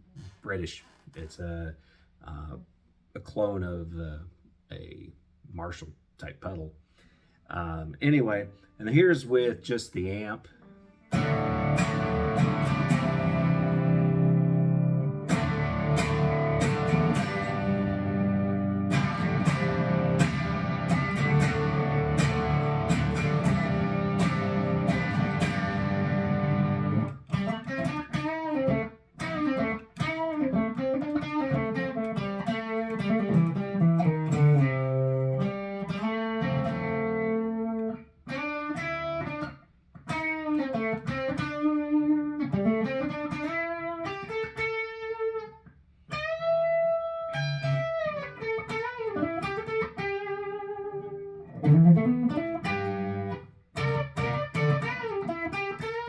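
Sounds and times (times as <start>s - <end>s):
electric guitar playing: 10.6s - 56.0s.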